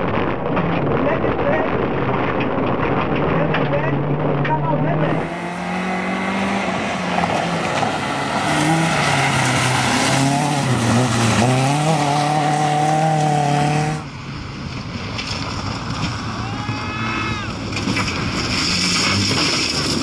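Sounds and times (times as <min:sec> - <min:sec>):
car engine revving hard: 0:03.2 - 0:14.1.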